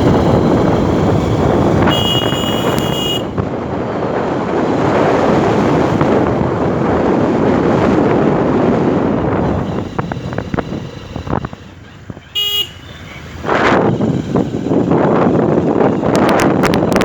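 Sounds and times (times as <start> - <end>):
wind rushing over microphone: 0.0 - 12.4, 13.0 - 17.0
vehicle horn toot: 1.8 - 3.4, 12.3 - 13.1.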